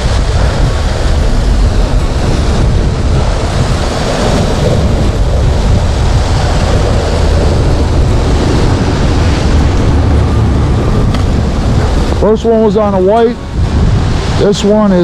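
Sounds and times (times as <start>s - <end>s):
creek water flowing: 0.0s - 15.0s
wind buffeting microphone: 0.0s - 15.0s.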